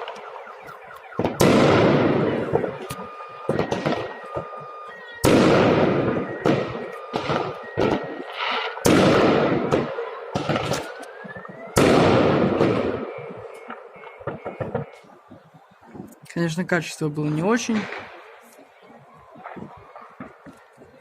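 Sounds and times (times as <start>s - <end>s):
firework rising whistle: 0.0s - 9.7s
fireworks booming: 1.0s - 16.2s, 17.2s - 21.0s
firework pops and crackles: 5.2s - 16.2s, 17.6s - 21.0s.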